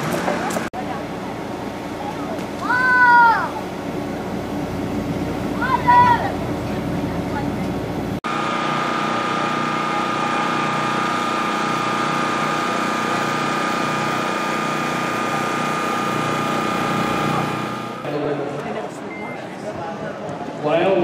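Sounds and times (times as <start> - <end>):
small motor running: 8.3 - 18.1.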